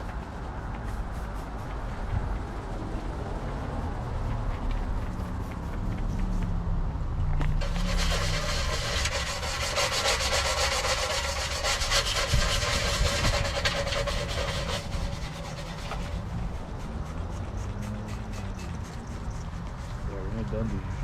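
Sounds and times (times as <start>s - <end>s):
steady low rumble: 0.0s - 21.0s
hand scrubbing on metal: 7.6s - 20.0s.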